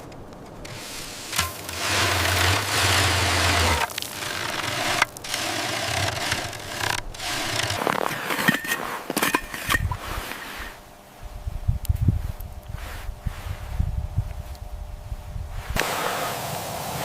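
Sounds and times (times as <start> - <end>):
hand tool scraping hard surface: 0.7 - 10.8.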